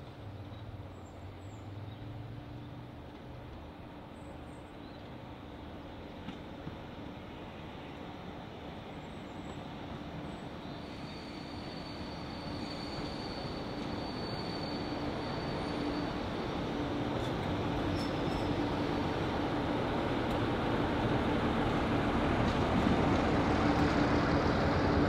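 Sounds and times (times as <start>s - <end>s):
train moving: 0.0s - 25.0s
high wheel squeal: 10.7s - 16.6s.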